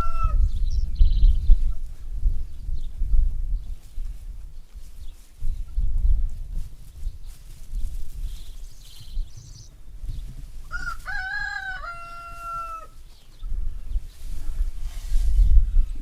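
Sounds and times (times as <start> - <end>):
rooster crowing: 0.0 - 0.5, 10.7 - 13.0.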